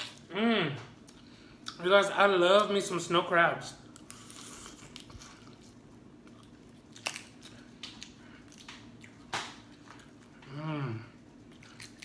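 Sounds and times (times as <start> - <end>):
soft chewing: 3.9 - 12.0.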